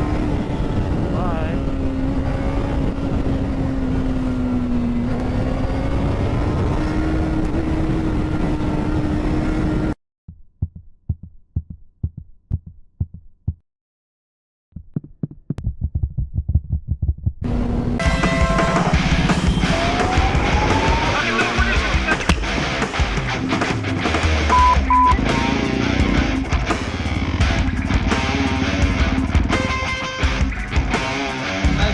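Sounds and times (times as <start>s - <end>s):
road noise: 0.0s - 10.0s, 17.5s - 29.9s
quick low thumps: 10.3s - 13.6s, 14.8s - 17.4s
motorcycle engine running: 24.6s - 31.9s.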